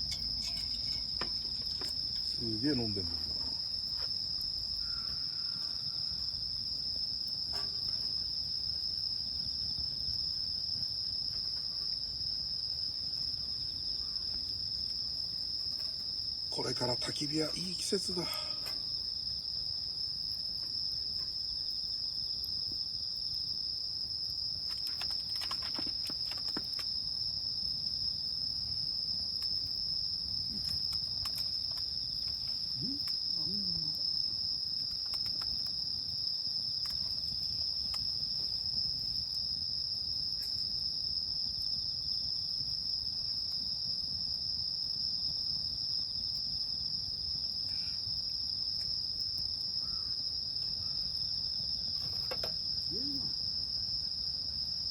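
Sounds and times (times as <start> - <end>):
campfire crackles: 0.0 - 5.2, 6.3 - 44.2
insects trilling: 0.0 - 54.9.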